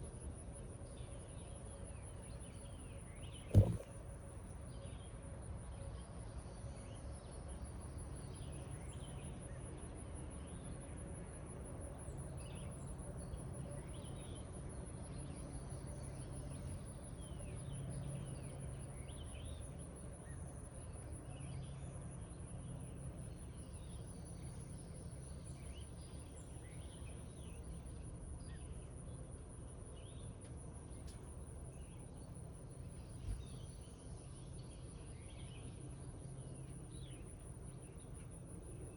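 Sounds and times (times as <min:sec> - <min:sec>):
loud knock: 0:03.5 - 0:03.9
insect trill: 0:15.2 - 0:29.1, 0:31.0 - 0:38.9.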